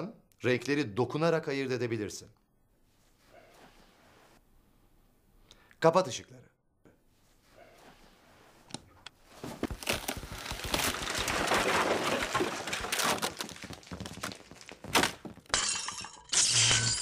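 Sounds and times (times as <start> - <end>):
furniture crashing and breaking: 9.6 - 15.6.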